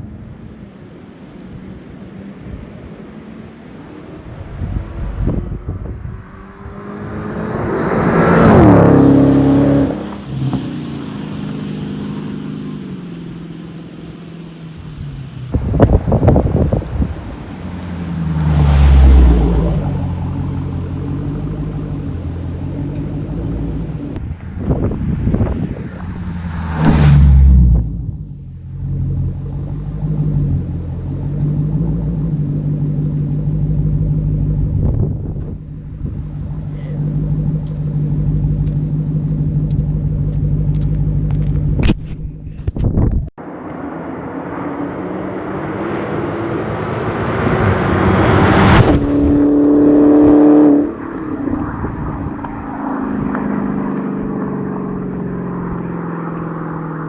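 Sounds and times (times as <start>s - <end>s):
wind buffeting microphone: 4.2s - 6.8s, 15.5s - 26.5s, 34.4s - 36.4s, 40.8s - 43.3s
car engine running at low revs: 8.6s - 57.0s
car exhaust driving past: 14.8s - 24.2s.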